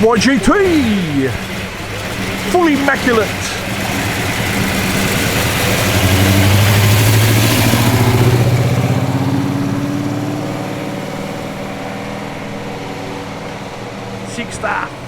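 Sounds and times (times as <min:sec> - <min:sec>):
car engine driving past: 0:00.0 - 0:15.0.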